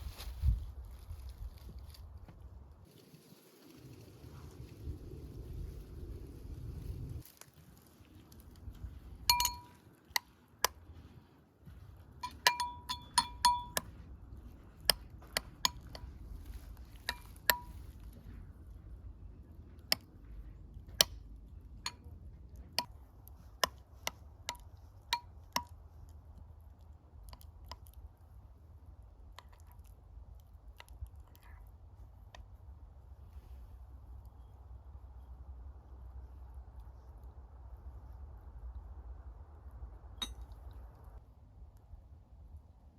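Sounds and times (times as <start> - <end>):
tableware clinking: 9.3 - 9.8, 12.2 - 13.8.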